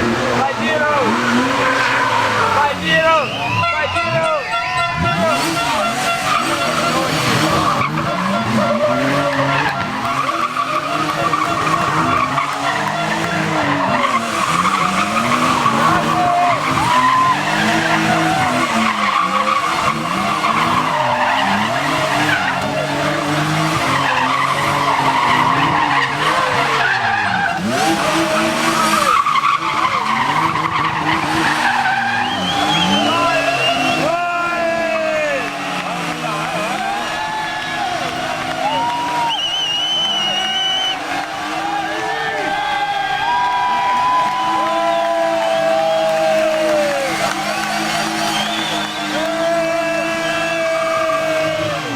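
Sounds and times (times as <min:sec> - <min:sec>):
car engine revving: 0:00.0 - 0:51.9
tyres squealing: 0:00.4 - 0:51.9.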